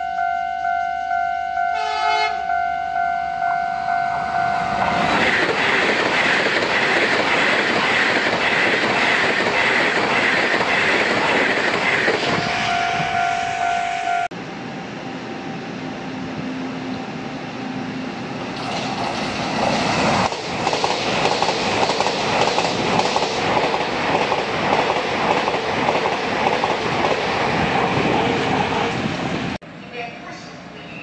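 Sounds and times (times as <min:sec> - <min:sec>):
level crossing bell ringing: 0:00.0 - 0:05.0
train horn blast: 0:00.0 - 0:05.1, 0:12.3 - 0:14.3
train rushing past: 0:03.9 - 0:31.0.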